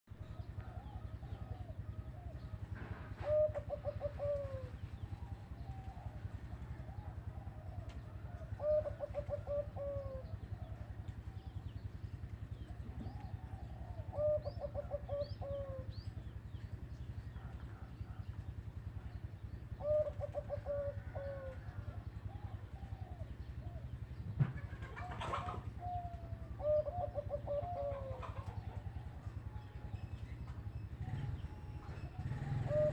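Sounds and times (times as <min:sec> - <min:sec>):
low pulsing hum: 0:00.1 - 0:32.9
doves cooing: 0:00.2 - 0:32.9.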